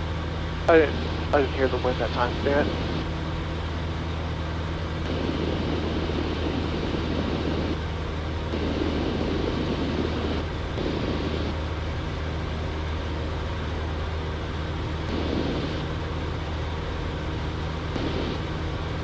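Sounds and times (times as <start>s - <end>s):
propeller plane engine droning: 0.0s - 19.0s.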